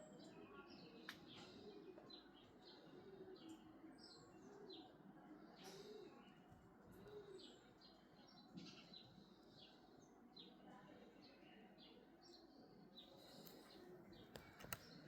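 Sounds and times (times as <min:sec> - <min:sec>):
small birds chirping: 0:11.2 - 0:15.0.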